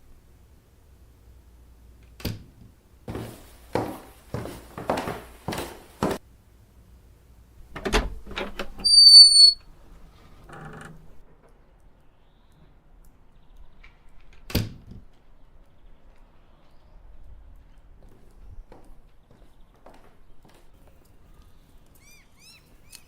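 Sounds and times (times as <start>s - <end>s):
short scuffing knocks: 3.1s - 6.2s
high-pitched squeak: 8.6s - 9.6s.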